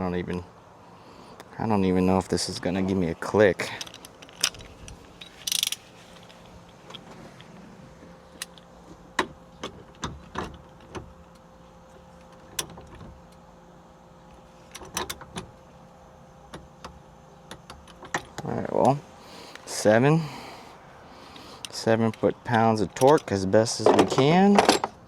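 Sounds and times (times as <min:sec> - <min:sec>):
ratchet wrench clicks: 0:03.8 - 0:05.8.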